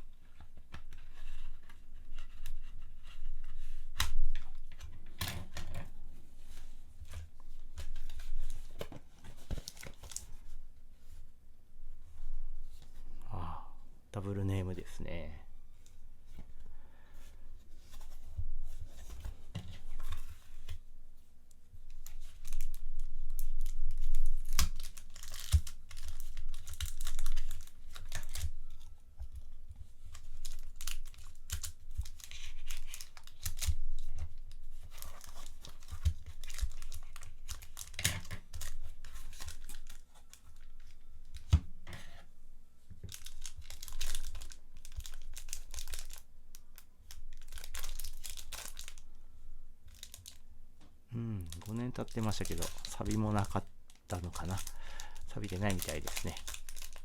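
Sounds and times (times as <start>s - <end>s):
packaging tearing and crinkling: 22.0s - 28.8s, 30.1s - 34.1s, 34.9s - 40.4s, 43.1s - 46.2s, 47.1s - 49.0s, 49.9s - 50.4s, 51.4s - 57.0s.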